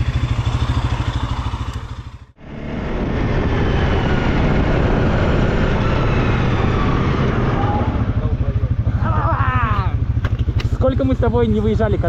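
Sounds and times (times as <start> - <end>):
quad bike engine idling: 0.0 - 2.4, 8.2 - 12.0
engine running steadily: 0.0 - 12.0.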